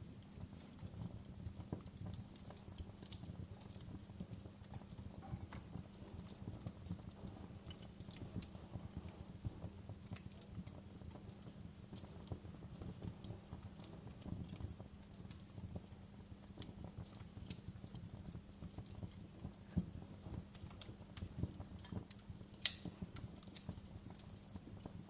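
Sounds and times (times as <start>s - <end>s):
fire crackling and popping: 0.0s - 25.0s
flames rumbling: 0.0s - 25.0s.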